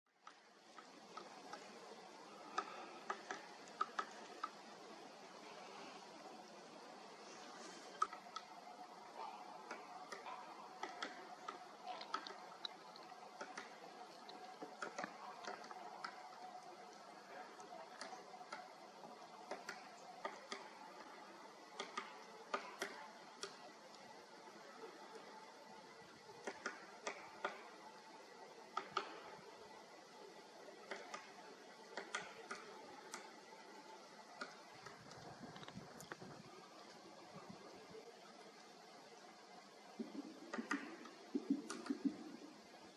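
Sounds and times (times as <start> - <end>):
faint background hiss: 0.1 - 42.9
woodpecker ticking: 0.2 - 4.9, 7.9 - 24.0.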